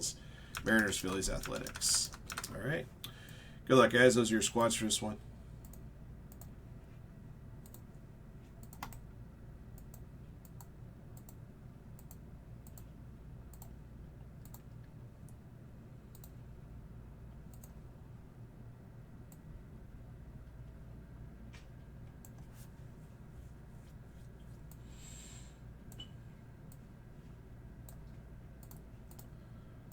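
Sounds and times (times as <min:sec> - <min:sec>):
low steady hum: 0:00.0 - 0:29.9
keyboard clicks: 0:00.5 - 0:02.6, 0:08.6 - 0:09.0, 0:28.6 - 0:29.3.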